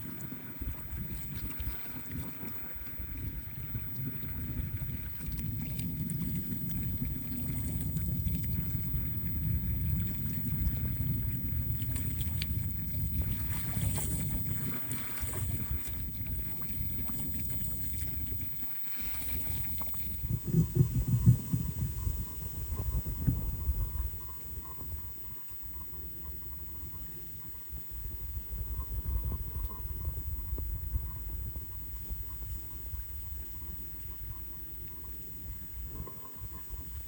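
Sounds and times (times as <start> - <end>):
lake waves: 0.0 - 20.4
wind buffeting microphone: 0.0 - 26.0, 26.8 - 37.0.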